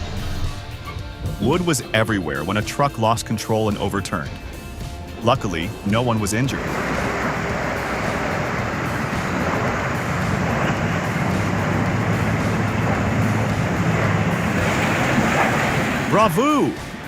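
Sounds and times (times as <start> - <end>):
truck engine running: 4.4 - 16.3
rushing noise: 5.6 - 17.0.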